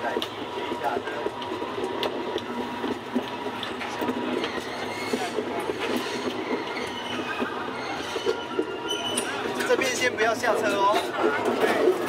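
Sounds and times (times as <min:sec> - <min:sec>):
train rolling along track: 0:00.0 - 0:12.0
wheels clicking over rail joints: 0:00.0 - 0:12.0
thin wheel squeal: 0:04.3 - 0:09.7.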